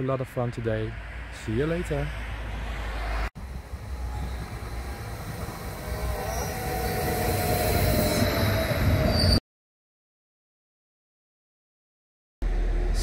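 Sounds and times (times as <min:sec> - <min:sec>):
train running noise: 0:03.4 - 0:09.4
train whine falling in pitch: 0:03.4 - 0:09.4
brake squeal: 0:03.5 - 0:09.4.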